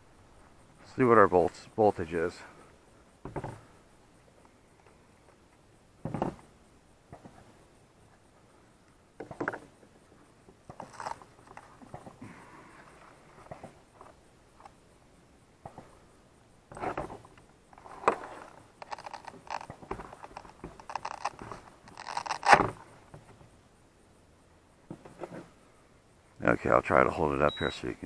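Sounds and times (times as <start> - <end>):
battery handling scrapes and rustling: 10.7 - 11.9, 16.7 - 22.8.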